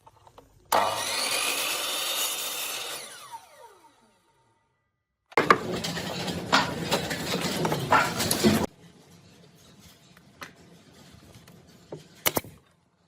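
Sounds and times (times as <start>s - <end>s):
machining noise on wood: 0.7s - 4.1s
power saw cutting wood: 0.7s - 4.4s, 5.4s - 8.7s.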